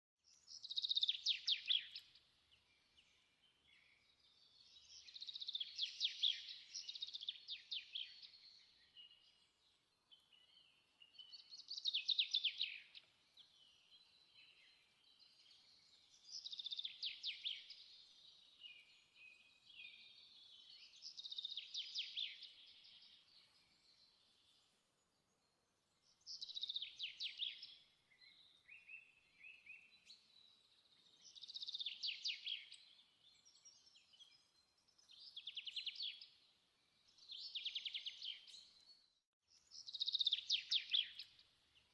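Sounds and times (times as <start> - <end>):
songbird singing trills: 0.3 - 9.4, 10.1 - 24.6, 25.3 - 39.0, 39.6 - 41.9.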